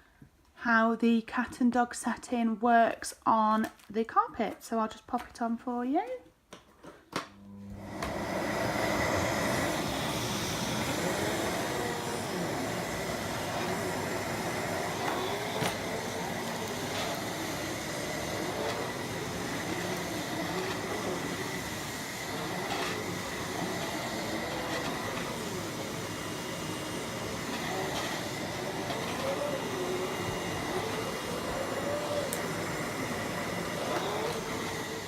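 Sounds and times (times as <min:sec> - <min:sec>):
vacuum cleaner running on carpet: 0:07.5 - 0:35.0.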